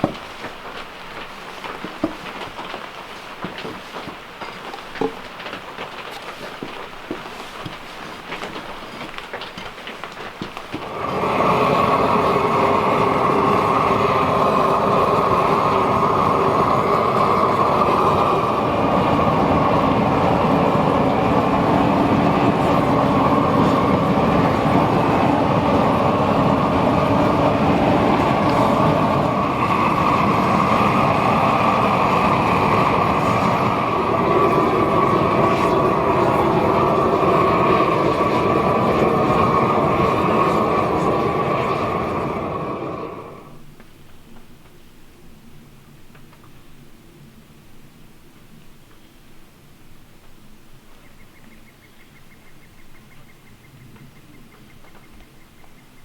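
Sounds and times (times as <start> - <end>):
band sawmill running: 0.0 - 43.6.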